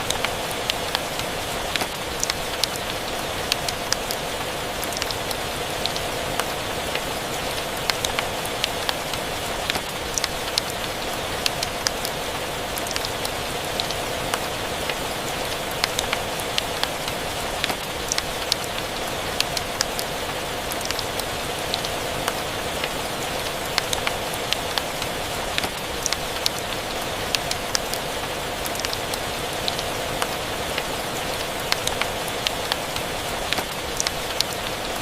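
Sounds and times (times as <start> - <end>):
steady rain: 0.0 - 35.0.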